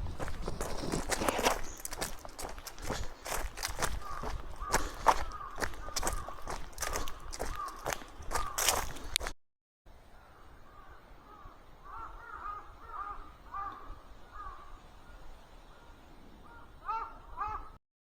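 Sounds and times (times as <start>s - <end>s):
faint outdoor ambience: 0.0s - 9.3s, 9.9s - 17.8s
crows cawing: 0.2s - 9.2s, 10.7s - 14.8s, 16.4s - 17.8s.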